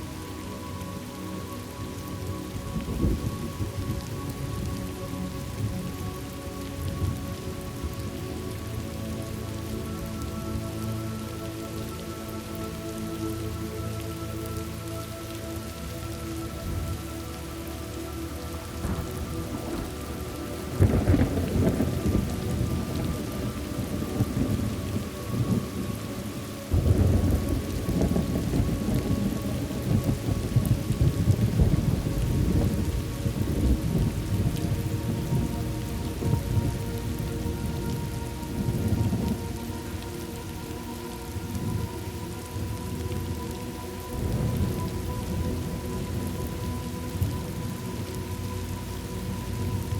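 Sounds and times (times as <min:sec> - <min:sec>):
steady rain falling: 0:00.0 - 0:49.9
thunder rumbling: 0:02.5 - 0:04.8, 0:18.8 - 0:48.3.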